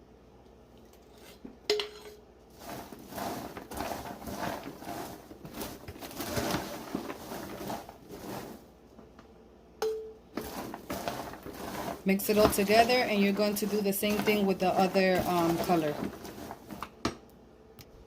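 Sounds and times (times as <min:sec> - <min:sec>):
popcorn rustling and scraping: 0:01.0 - 0:09.1, 0:10.3 - 0:17.0.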